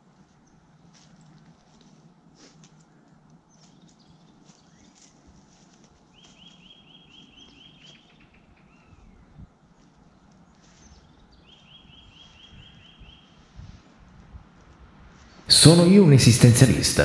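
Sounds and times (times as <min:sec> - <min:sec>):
faint bird chirps: 0:10.6 - 0:13.3.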